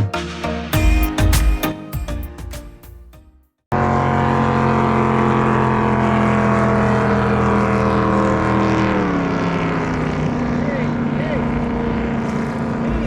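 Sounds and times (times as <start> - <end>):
music with struck notes: 0.0 - 3.5
outboard motor running: 3.7 - 13.0.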